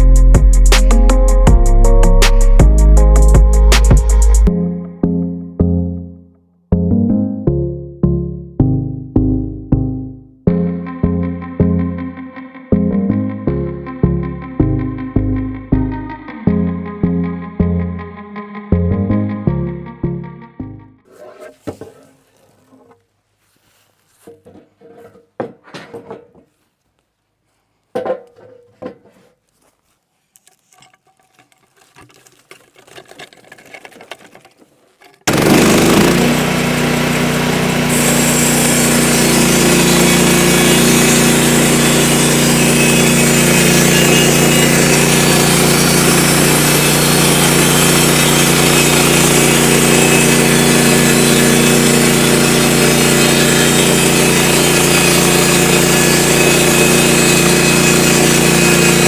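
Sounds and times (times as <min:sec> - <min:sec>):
band sawmill running: 0:00.0 - 0:04.5, 0:35.3 - 0:59.0
engine hum: 0:35.3 - 0:42.7.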